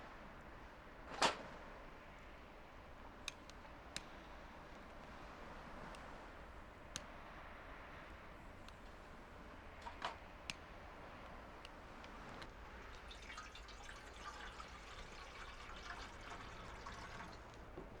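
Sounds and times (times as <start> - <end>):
small sharp clicks: 3.2 - 4.2, 9.8 - 12.5
faint liquid trickling: 11.8 - 18.0.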